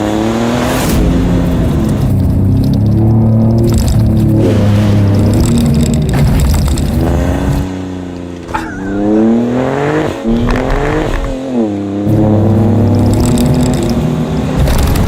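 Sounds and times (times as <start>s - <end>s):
engine revving hard: 8.8s - 15.0s.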